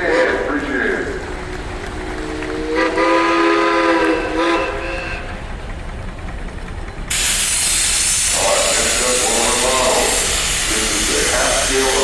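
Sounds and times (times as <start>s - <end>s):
steam whistle blast: 2.6s - 5.2s
steam hissing: 7.1s - 12.0s.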